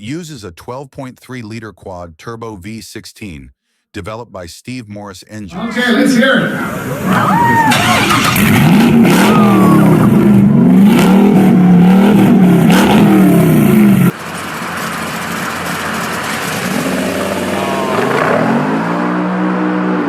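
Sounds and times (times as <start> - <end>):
engine revving: 6.6 - 20.0.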